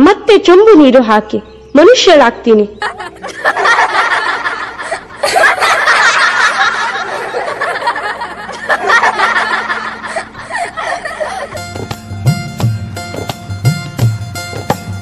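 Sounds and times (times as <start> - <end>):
children laughing and chattering: 2.8 - 11.7.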